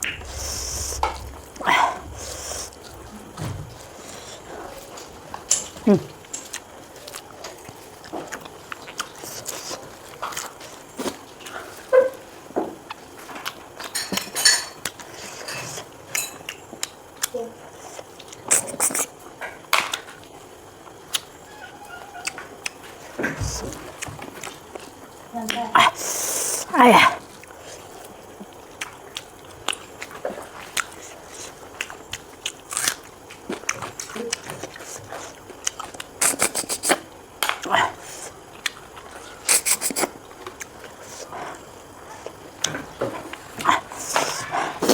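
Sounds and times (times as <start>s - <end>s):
chewing: 0.0s - 12.1s, 12.8s - 26.7s, 27.3s - 44.9s
biting and chewing food: 27.5s - 44.9s.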